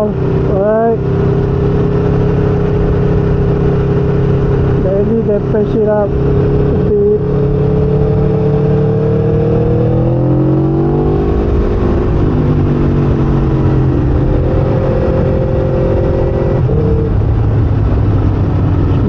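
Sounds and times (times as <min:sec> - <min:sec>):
motorcycle engine running: 0:00.0 - 0:19.0
wind noise: 0:00.0 - 0:19.0.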